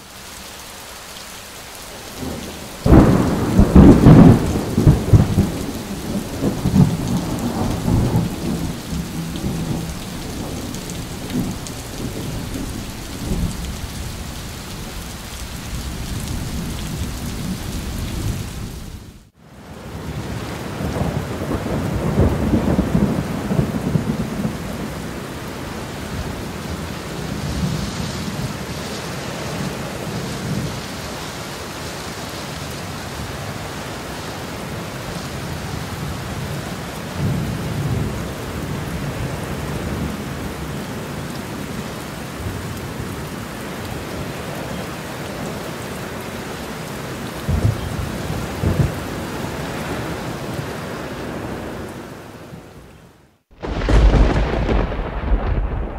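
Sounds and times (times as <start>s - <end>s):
steady rain: 0.0s - 55.9s
thunder rumbles: 2.1s - 19.2s, 19.9s - 25.2s, 47.4s - 50.2s, 53.5s - 55.9s.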